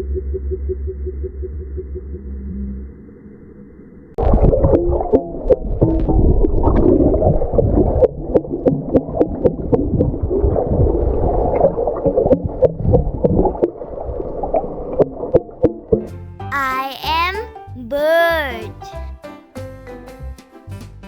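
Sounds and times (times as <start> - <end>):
water bubbling and gurgling: 4.2 - 15.9.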